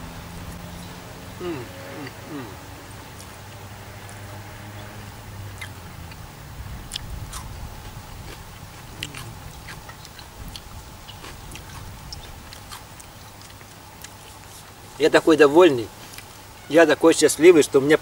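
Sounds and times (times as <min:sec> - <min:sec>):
man chewing with wet smacks: 0:02.0 - 0:04.2, 0:05.6 - 0:06.3, 0:06.9 - 0:15.0, 0:16.0 - 0:16.4.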